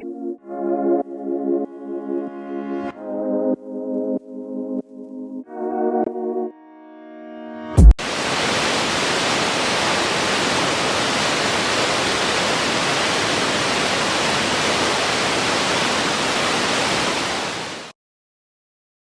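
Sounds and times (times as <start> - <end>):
synthesizer chord: 0.0 - 7.9
loud low thud: 7.8 - 8.0
waterfall rushing: 8.0 - 17.9.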